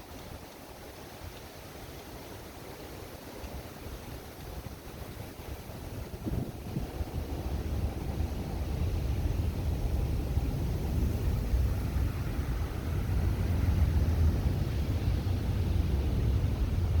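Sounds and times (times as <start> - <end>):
strong wind buffeting microphone: 4.1 - 17.0.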